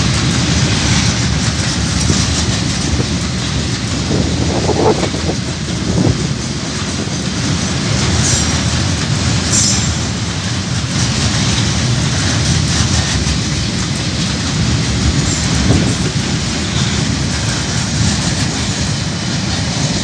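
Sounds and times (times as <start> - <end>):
train wagons rumbling on rails: 0.0 - 20.0
high wheel squeals: 9.5 - 10.2.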